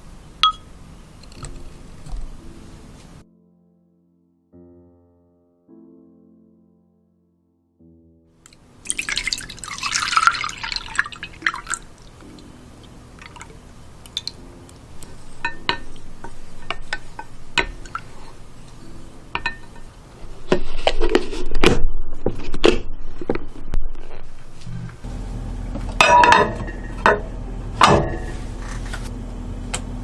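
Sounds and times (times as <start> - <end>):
clinks and drips: 8.4 - 14.8, 15.4 - 19.9
milk pouring into glass: 8.5 - 14.4.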